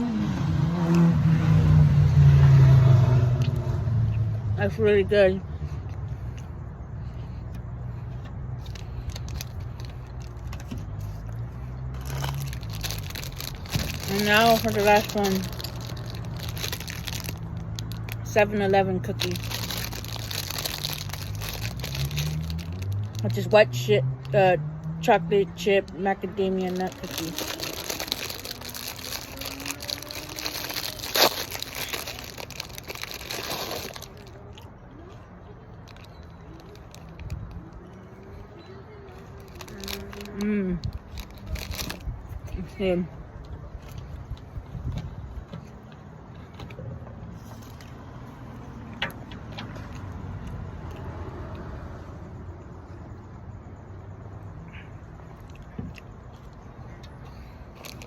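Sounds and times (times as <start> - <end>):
plastic wrapper crinkling: 8.6 - 23.4, 26.2 - 34.7, 35.8 - 38.4, 39.1 - 42.4, 57.8 - 58.0.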